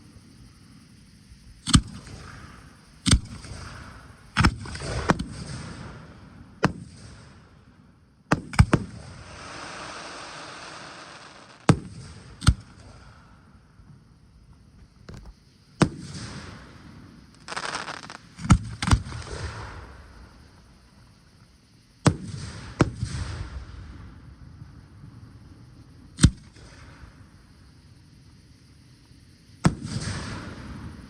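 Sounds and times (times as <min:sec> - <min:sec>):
fireworks crackling hiss: 0:00.0 - 0:31.0
fireworks bangs: 0:08.4 - 0:13.0, 0:15.1 - 0:20.4.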